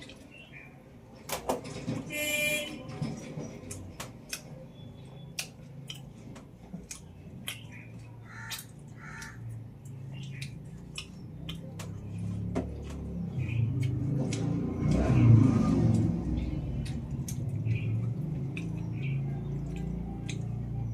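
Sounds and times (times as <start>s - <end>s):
wet mouth clicks and smacks chewing: 3.7s - 15.1s, 16.7s - 20.7s.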